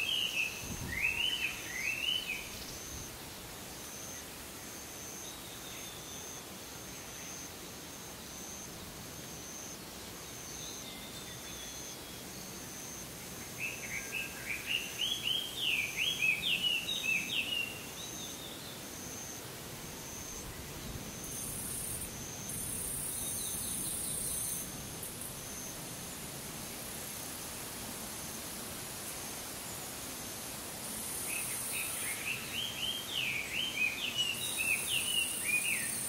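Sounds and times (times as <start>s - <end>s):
high insect buzz: 13.9s - 36.0s.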